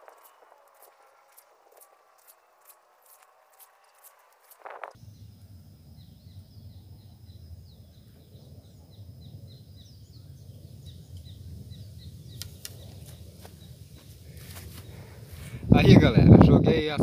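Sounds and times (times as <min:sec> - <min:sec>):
wind noise rumble: 0:04.5 - 0:17.0.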